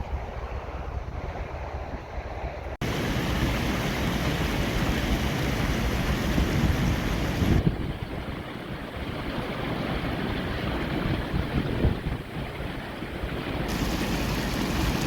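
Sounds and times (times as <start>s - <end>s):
wind noise on microphone: 0.0s - 15.0s
water rushing: 2.8s - 11.0s, 13.5s - 15.0s.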